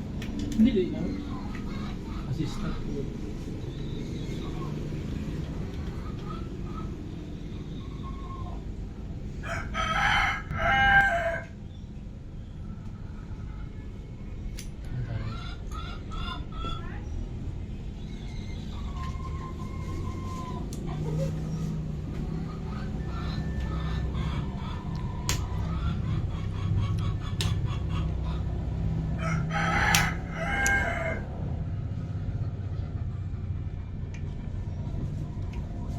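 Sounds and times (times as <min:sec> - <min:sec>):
steady low hum: 0:00.0 - 0:35.9
rooster crowing: 0:09.4 - 0:11.6, 0:29.1 - 0:31.5
sharp clicks: 0:24.9 - 0:25.7, 0:29.9 - 0:30.8.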